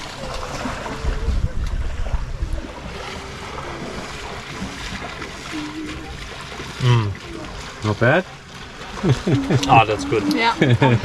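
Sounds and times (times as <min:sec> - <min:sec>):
wind buffeting microphone: 0:00.0 - 0:06.5
sea water washing around boat: 0:00.0 - 0:11.0.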